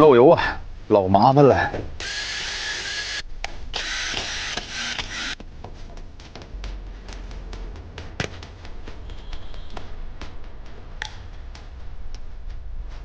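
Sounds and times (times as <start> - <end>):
rotary hammer motor running: 2.0 - 3.2, 3.8 - 5.4.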